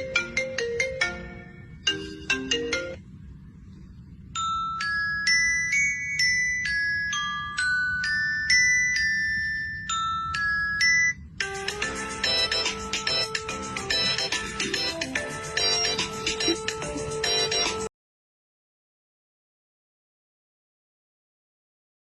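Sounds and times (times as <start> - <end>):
bell-like tinkling melody: 0.2 - 3.0, 4.3 - 17.8.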